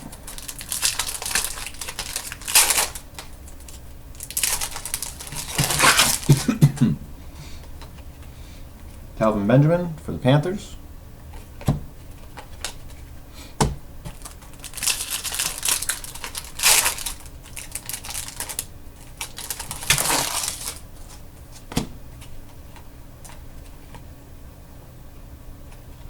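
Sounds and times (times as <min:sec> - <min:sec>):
card pack wrapper crinkling: 0:00.0 - 0:06.6, 0:14.1 - 0:21.2.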